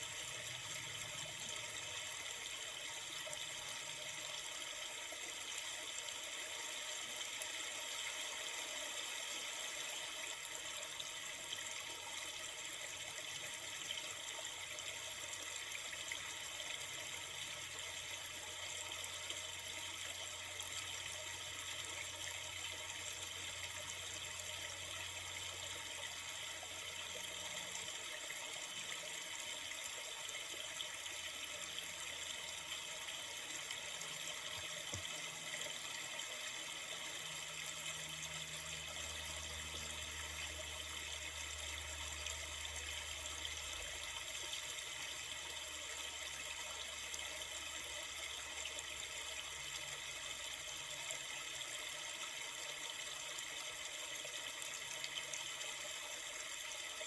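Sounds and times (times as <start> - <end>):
river water flowing: 22.6 - 44.8.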